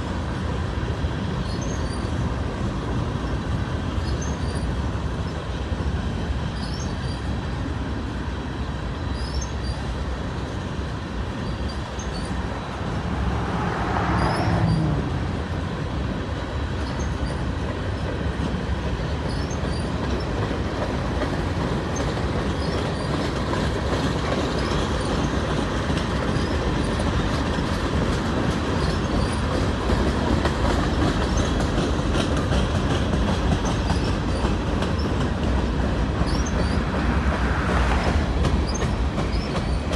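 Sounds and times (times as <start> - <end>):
train wheels rumbling on rail: 0.0 - 39.9
wheel squeal: 1.4 - 2.2, 6.6 - 7.3, 9.1 - 10.5, 11.3 - 15.4, 19.2 - 20.4, 28.7 - 39.9.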